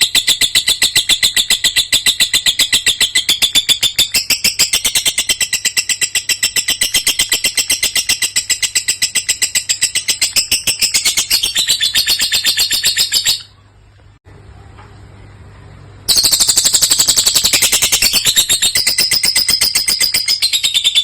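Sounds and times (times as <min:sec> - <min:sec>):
lovebird chattering song: 0:00.0 - 0:13.6, 0:16.1 - 0:21.0.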